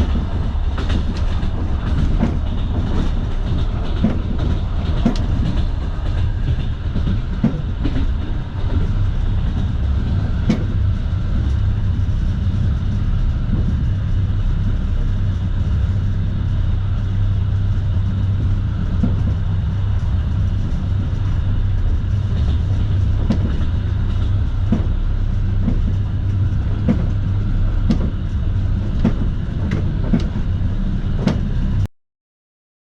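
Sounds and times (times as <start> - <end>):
wheels clacking over rail joints: 0.0 - 10.9
train wheels rumbling on track: 0.0 - 31.9.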